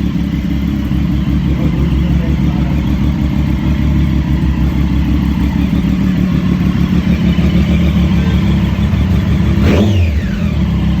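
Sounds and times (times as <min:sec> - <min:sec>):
motorcycle engine running: 0:00.0 - 0:11.0
engine revving: 0:06.8 - 0:11.0.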